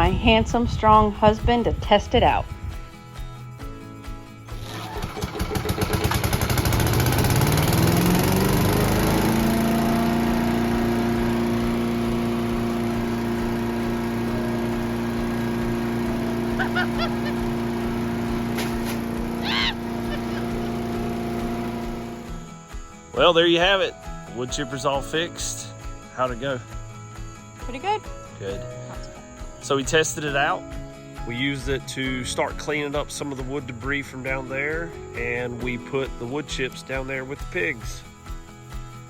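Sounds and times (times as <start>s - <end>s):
wood chipper engine running: 4.5s - 23.3s.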